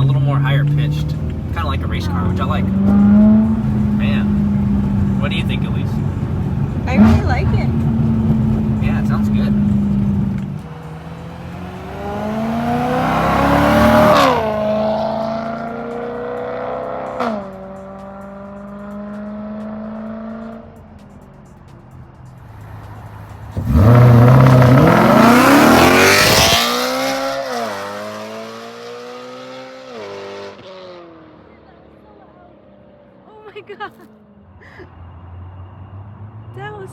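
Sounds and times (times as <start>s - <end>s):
car engine revving hard: 0.0s - 20.6s, 23.4s - 31.4s.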